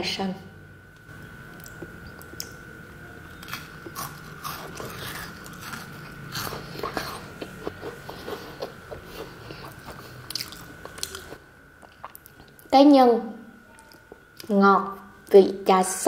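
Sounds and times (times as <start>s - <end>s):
faint high hum: 0.0s - 16.0s
crunchy biscuit chewing: 3.3s - 12.6s.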